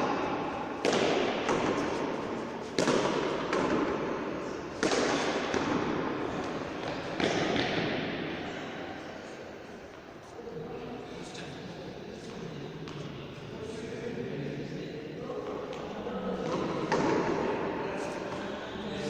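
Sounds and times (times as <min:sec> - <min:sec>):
ball smacks echoing in court: 0:00.0 - 0:08.9, 0:15.4 - 0:18.5.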